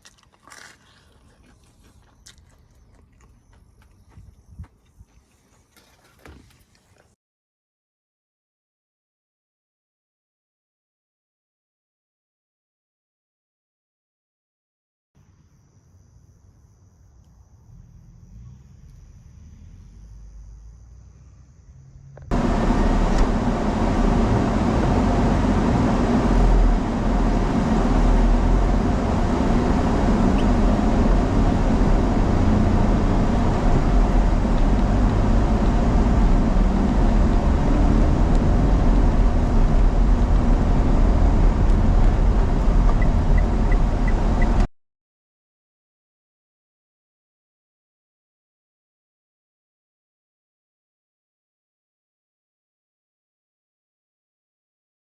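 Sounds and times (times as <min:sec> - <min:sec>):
road vehicle rumbling: 0:17.2 - 0:44.7.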